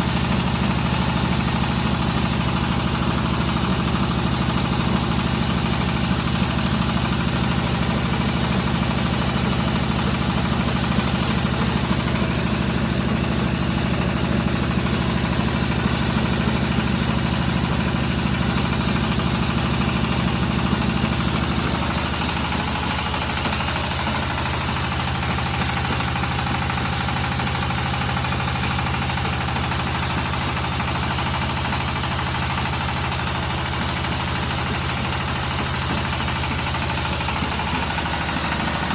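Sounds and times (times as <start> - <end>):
extruder machine droning: 35.6 - 38.9.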